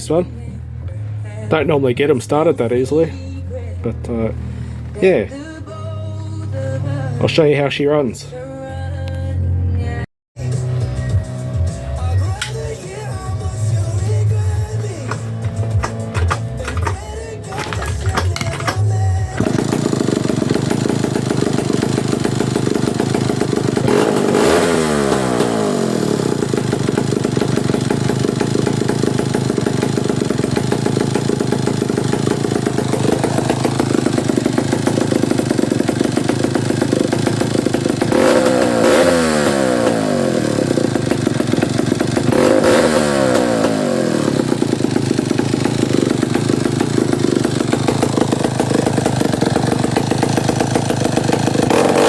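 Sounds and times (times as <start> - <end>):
chainsaw idling and revving: 13.7 - 52.0.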